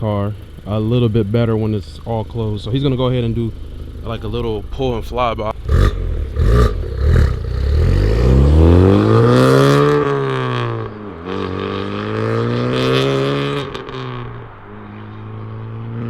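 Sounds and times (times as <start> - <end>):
car engine revving past: 5.5 - 16.0.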